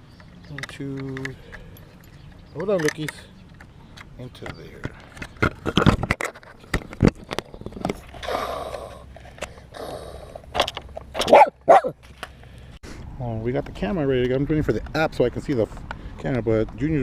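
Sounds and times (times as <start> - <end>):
camera handling clicks and knocks: 0.2 - 8.2, 10.5 - 11.4
small dogs barking and yipping: 11.2 - 12.0.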